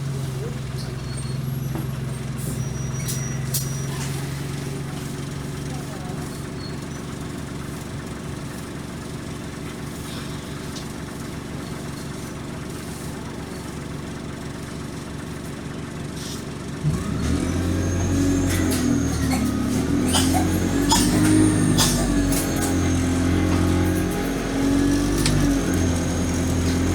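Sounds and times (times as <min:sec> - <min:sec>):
bus engine idling and revving: 0:00.0 - 0:26.9
rising engine whine: 0:16.8 - 0:26.9.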